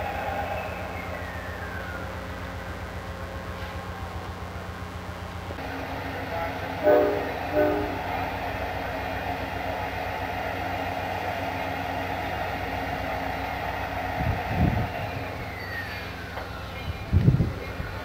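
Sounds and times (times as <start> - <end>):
diesel locomotive idling: 0.0 - 18.0.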